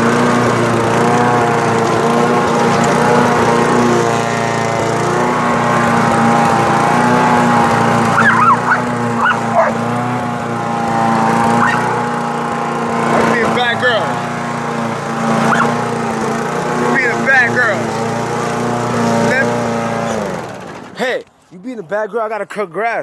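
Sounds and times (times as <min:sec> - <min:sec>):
lawn mower engine running: 0:00.0 - 0:22.0
dog barking: 0:08.2 - 0:09.8, 0:11.6 - 0:11.9, 0:15.5 - 0:15.8.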